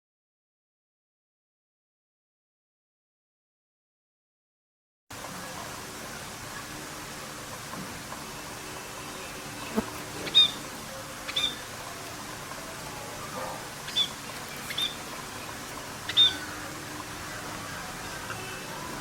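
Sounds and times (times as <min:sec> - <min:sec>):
pet bird chirping: 0:09.6 - 0:10.7, 0:11.3 - 0:11.6, 0:13.8 - 0:15.1, 0:16.1 - 0:16.6.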